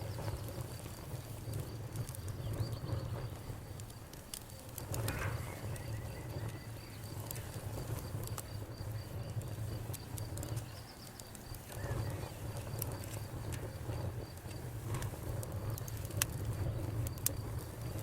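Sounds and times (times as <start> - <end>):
insect chirping: 0.0 - 14.0
campfire crackling and popping: 0.0 - 18.0.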